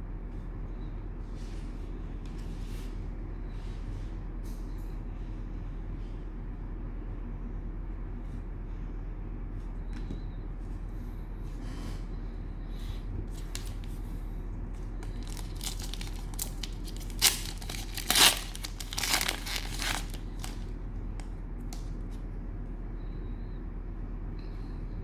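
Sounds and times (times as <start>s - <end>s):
low steady hum: 0.0s - 25.0s
cellophane wrapper crinkling: 13.4s - 14.0s, 15.0s - 20.7s.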